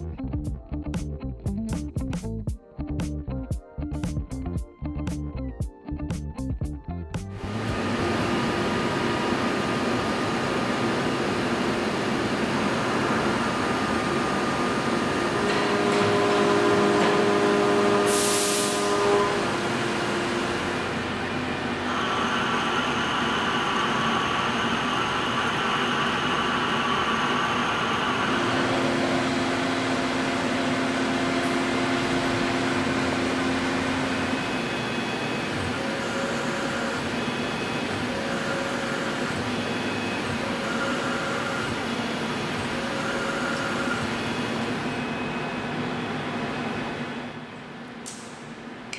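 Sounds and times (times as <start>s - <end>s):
lathe turning steel: 7.5s - 45.4s.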